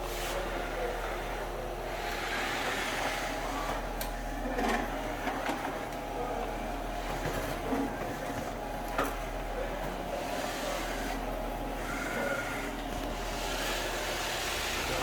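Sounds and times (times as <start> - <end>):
vacuum cleaner running: 1.9 - 5.6, 9.6 - 15.0.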